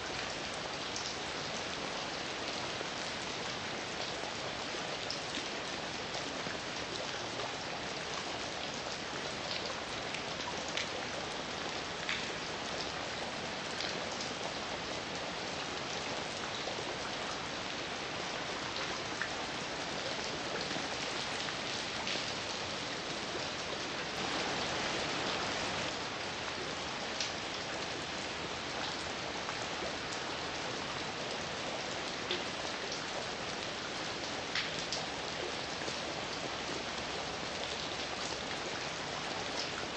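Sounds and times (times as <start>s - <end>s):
heavy rain: 0.0s - 39.9s
raindrops ticking close by: 5.0s - 39.9s.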